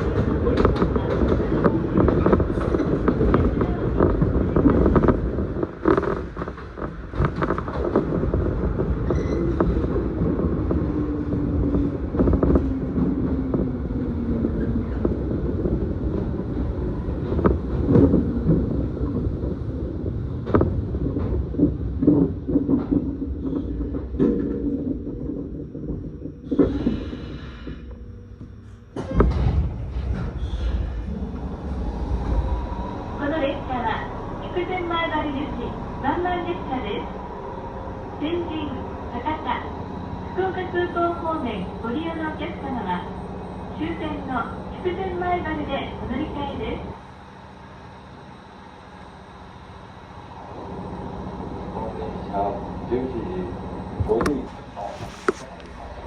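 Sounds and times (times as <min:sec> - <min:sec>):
train car body creaking: 0:00.0 - 0:46.8, 0:52.9 - 0:56.0
train rail noise: 0:00.0 - 0:56.0.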